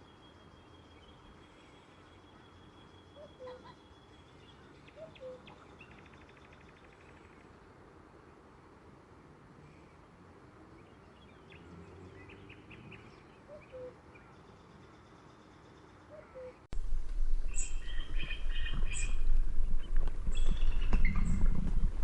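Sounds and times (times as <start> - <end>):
birds chirping: 0.0 - 7.7, 10.0 - 22.0
low bird call notes: 2.1 - 4.1, 4.8 - 6.2, 12.2 - 14.3, 16.1 - 21.6
steady low rumble: 16.7 - 22.0.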